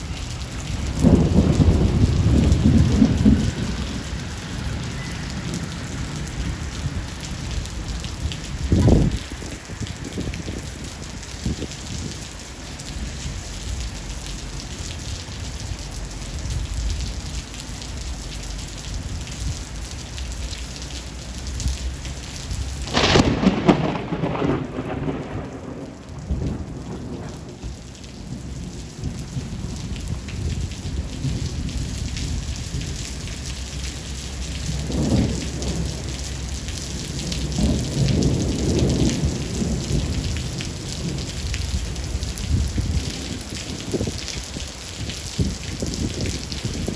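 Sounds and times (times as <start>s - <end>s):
thunder rumbling: 0.0s - 17.5s, 21.7s - 46.9s
heavy rain: 0.0s - 46.9s
sharp thunderclap: 0.7s - 4.2s, 22.8s - 32.5s, 37.2s - 44.2s.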